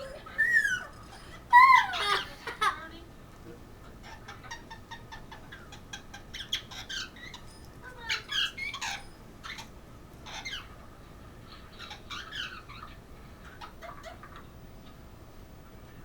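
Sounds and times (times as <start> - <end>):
parrot squeaking and chattering: 0.0 - 2.2, 4.0 - 10.7, 11.8 - 12.9.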